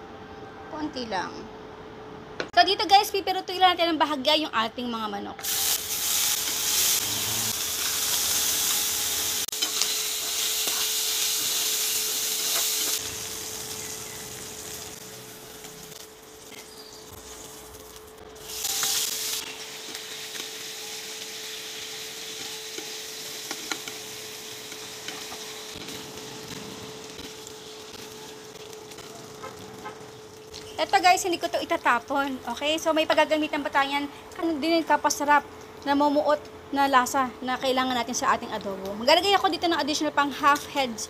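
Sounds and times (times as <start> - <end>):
chicken sizzling in a pan: 5.4 - 32.3.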